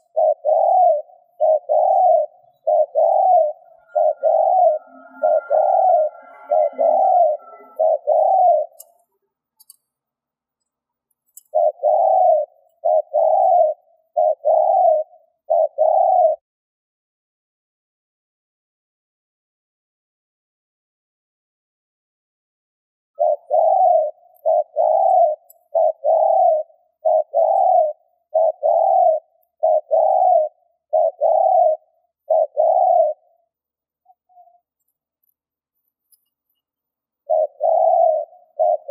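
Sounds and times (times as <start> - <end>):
dove cooing: 0.0 - 9.0, 11.4 - 16.4, 23.2 - 34.7, 37.2 - 38.9.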